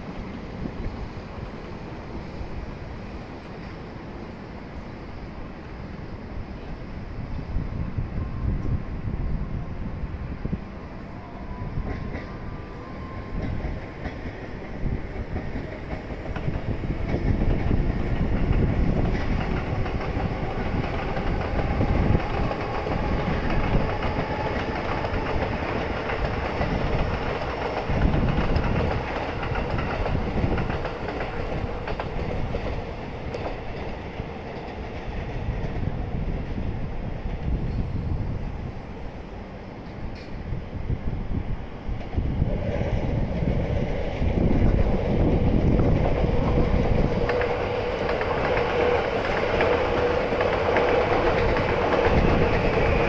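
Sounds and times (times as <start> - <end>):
train rumbling past: 0.0 - 53.0.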